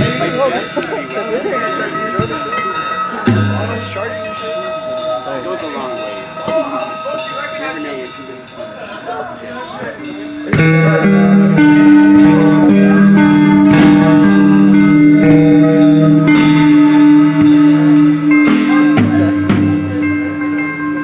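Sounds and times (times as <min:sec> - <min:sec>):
electric guitar chords: 0:00.0 - 0:08.5, 0:09.9 - 0:21.0
drum and cymbal hits: 0:00.0 - 0:21.0.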